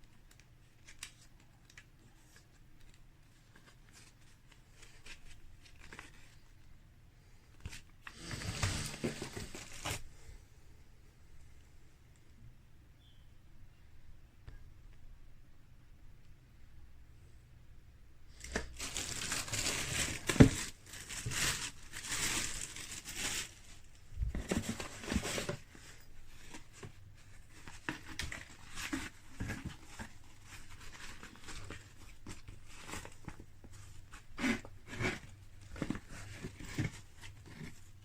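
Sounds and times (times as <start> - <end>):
plastic packaging crinkling: 18.4 - 33.5.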